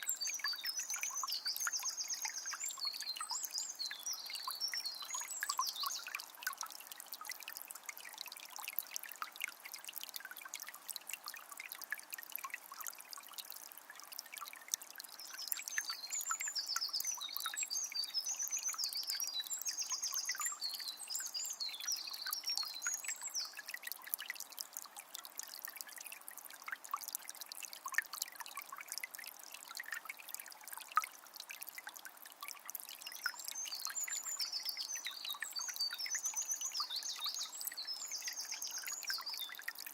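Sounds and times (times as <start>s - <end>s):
songbird singing: 0.0s - 6.2s, 15.2s - 23.7s, 33.0s - 39.6s
spring water trickling: 0.0s - 39.9s.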